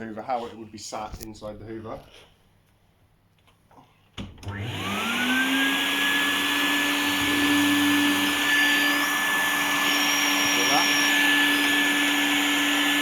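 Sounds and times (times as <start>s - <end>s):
vacuum cleaner motor whining: 4.4s - 13.0s.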